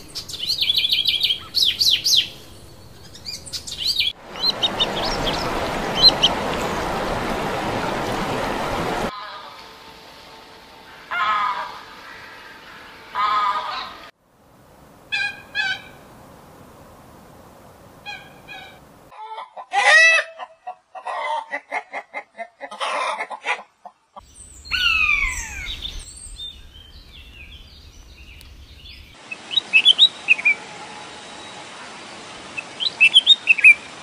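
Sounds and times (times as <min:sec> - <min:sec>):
steady hiss: 0:14.2 - 0:19.1
coot calling: 0:15.1 - 0:16.0, 0:18.0 - 0:23.7.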